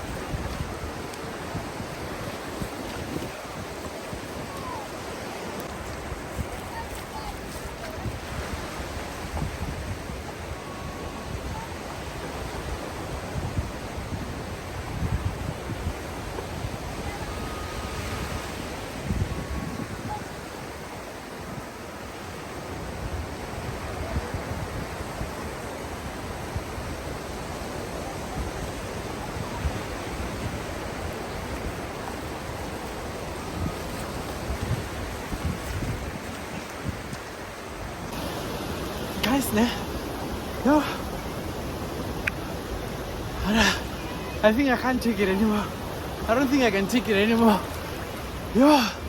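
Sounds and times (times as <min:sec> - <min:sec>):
sea waves washing: 0:00.0 - 0:49.0
wind buffeting microphone: 0:00.0 - 0:49.0.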